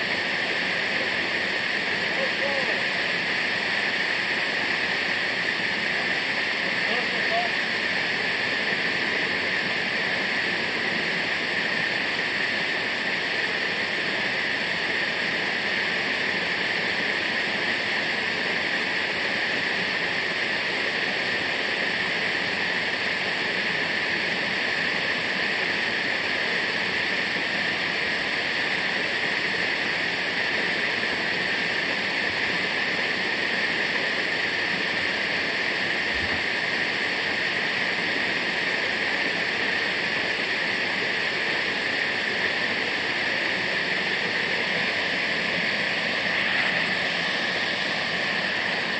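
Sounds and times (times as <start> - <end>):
waterfall rushing: 27.8 - 48.9.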